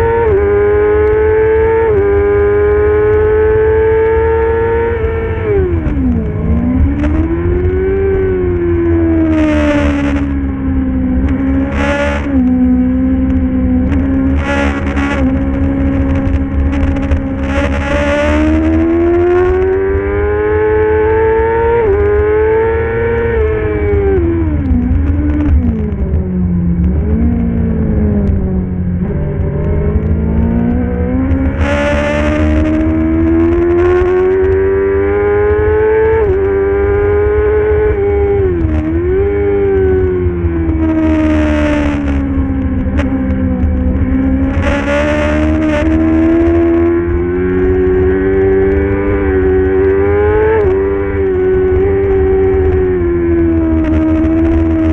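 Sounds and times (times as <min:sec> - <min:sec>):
racing motorcycle engine: 0:00.0 - 0:54.9
low rumble: 0:23.4 - 0:34.5.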